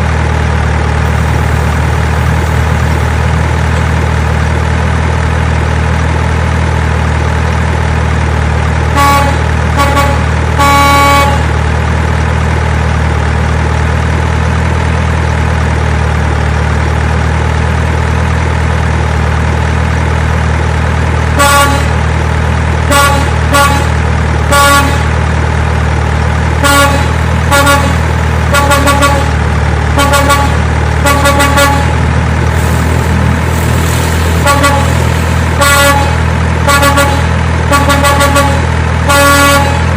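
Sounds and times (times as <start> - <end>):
truck engine idling: 0.0 - 39.9
truck horn tooting: 8.9 - 11.6, 21.4 - 22.0, 22.9 - 25.2, 26.6 - 32.2, 34.3 - 39.9.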